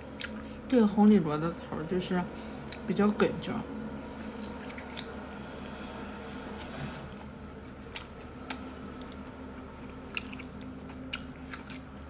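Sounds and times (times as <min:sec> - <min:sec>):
low hum: 0:00.0 - 0:12.0
chewing: 0:04.2 - 0:12.0.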